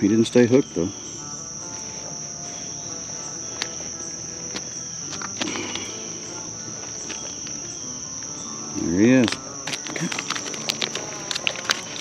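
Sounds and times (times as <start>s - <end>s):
insect chorus trilling: 0.0s - 12.0s
faint clicks: 9.3s - 12.0s.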